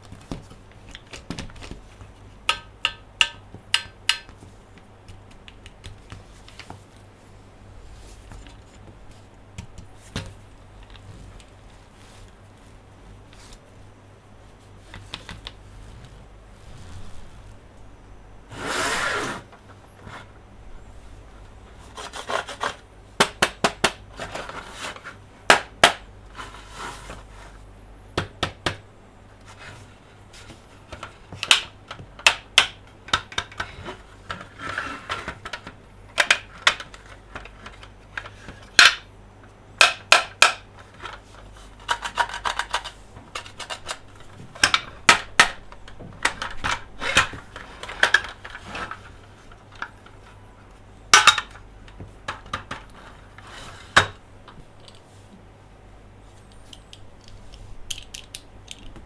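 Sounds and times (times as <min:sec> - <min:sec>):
plastic toys clicking and tapping: 0:00.1 - 0:06.8, 0:30.9 - 0:33.7, 0:35.2 - 0:39.1, 0:39.8 - 0:48.7, 0:51.1 - 0:53.0, 0:56.5 - 0:59.0
plastic toy scraping: 0:15.8 - 0:17.6, 0:18.5 - 0:20.3, 0:33.6 - 0:35.6, 0:46.2 - 0:49.2, 0:52.9 - 0:54.1.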